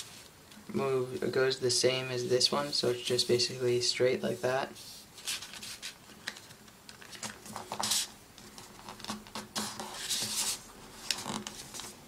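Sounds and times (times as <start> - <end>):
paper crinkling and folding: 4.3 - 12.0.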